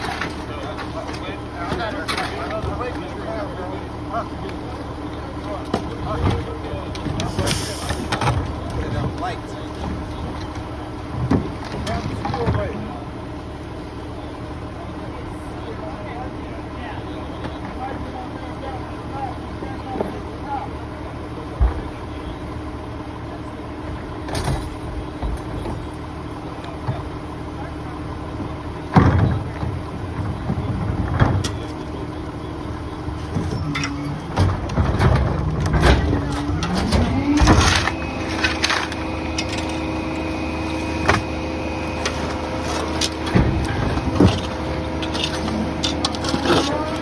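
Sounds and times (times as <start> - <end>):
truck engine idling: 0.0 - 47.0
blade crushing debris: 34.6 - 47.0.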